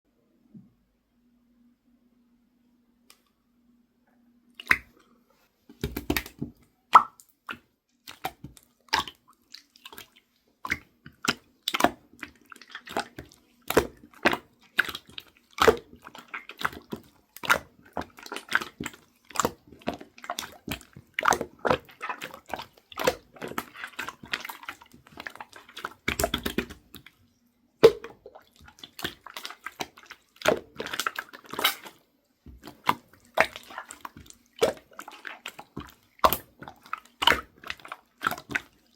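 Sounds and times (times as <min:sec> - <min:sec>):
slime squished by hand: 0:10.7 - 0:27.1, 0:27.8 - 0:38.9.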